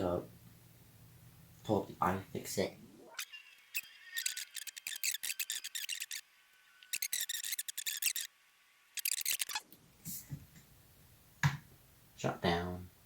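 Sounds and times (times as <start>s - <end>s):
laptop keyboard typing: 9.0s - 9.6s.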